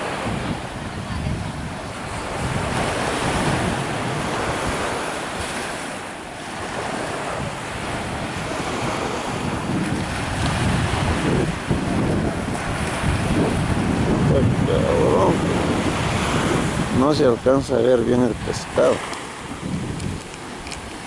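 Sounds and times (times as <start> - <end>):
ocean surf breaking: 0.0 - 21.0
wind buffeting microphone: 0.0 - 21.0.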